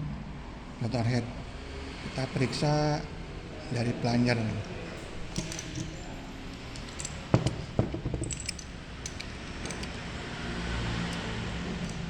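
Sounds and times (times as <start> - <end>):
low background hum: 0.0 - 12.0
metal parts and tools clinking: 4.4 - 12.0.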